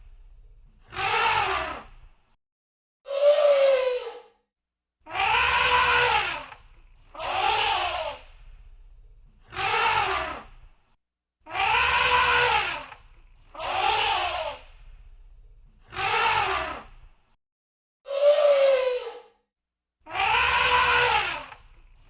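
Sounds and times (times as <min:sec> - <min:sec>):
elephant trumpeting: 0:05.1 - 0:06.6, 0:07.2 - 0:08.2, 0:11.5 - 0:13.0, 0:13.6 - 0:14.6, 0:20.1 - 0:21.6.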